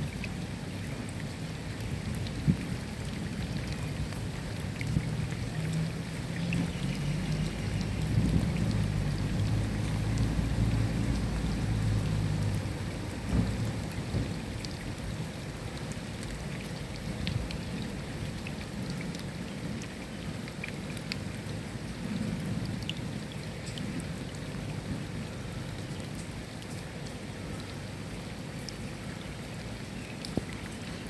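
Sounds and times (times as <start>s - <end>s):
steady rain falling: 0.0s - 31.0s
thunder rumble: 13.3s - 14.4s.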